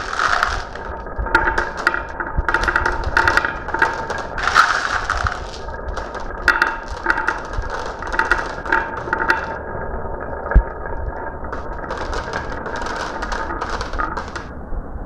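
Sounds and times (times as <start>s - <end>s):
marbles clattering down a run: 0.0s - 14.6s.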